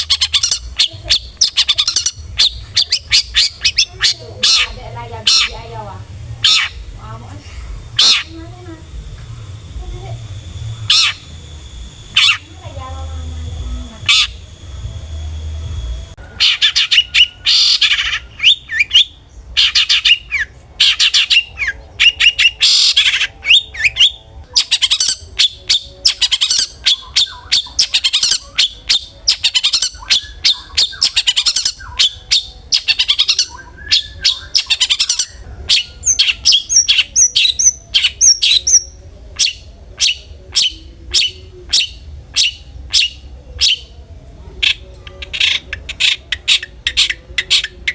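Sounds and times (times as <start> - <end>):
bird harsh rapid calls: 0.0 - 5.8, 6.4 - 7.1, 7.9 - 8.4, 10.7 - 11.4, 12.0 - 12.6, 14.0 - 14.5, 16.3 - 43.8
steady high tone: 0.0 - 45.0.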